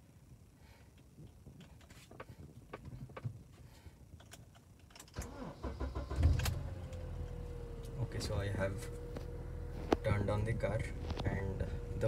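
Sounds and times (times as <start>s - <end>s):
car engine starting and idling: 4.2s - 12.0s.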